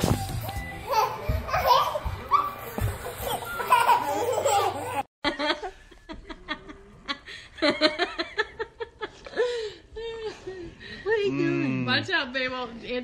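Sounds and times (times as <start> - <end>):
babies laughing and squealing: 0.8 - 5.1
baby giggling: 3.1 - 5.1.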